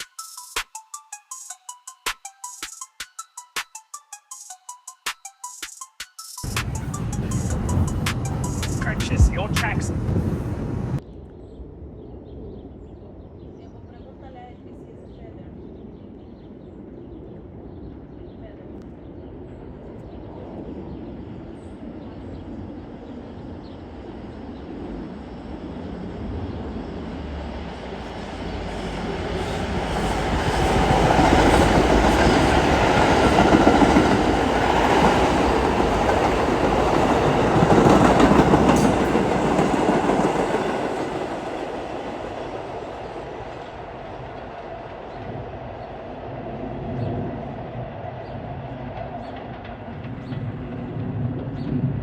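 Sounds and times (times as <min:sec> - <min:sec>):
subway train passing on rails: 0:06.4 - 0:52.0.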